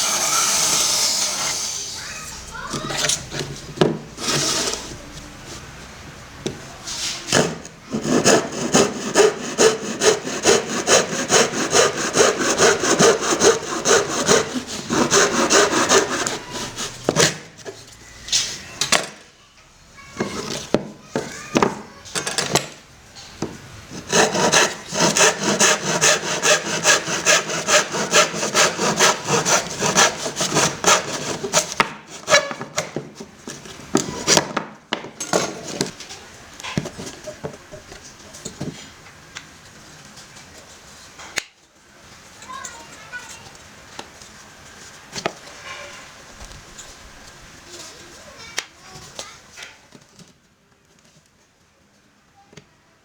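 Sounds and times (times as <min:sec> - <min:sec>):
hand saw cutting wood: 0:00.0 - 0:04.9, 0:07.3 - 0:17.6, 0:23.9 - 0:33.0, 0:33.6 - 0:34.6, 0:35.2 - 0:36.0.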